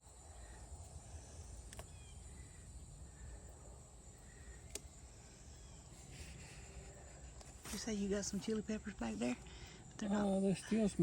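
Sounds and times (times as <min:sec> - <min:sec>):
faint bird chirp: 0:00.0 - 0:08.7
sharp clicks: 0:04.6 - 0:05.0.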